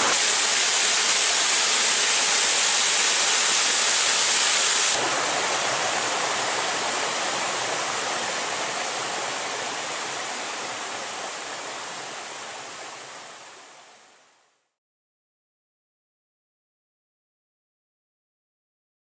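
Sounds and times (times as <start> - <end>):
waterfall rushing: 0.0 - 13.7.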